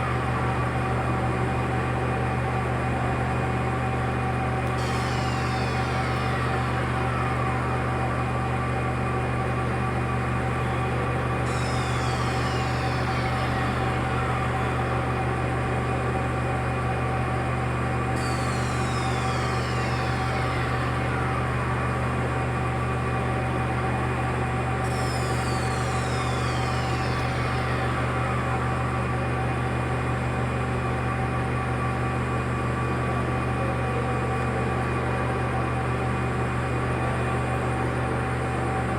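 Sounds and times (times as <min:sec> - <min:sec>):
machine electrical hum: 0:00.0 - 0:35.0
high whine sweeping down: 0:04.7 - 0:31.4.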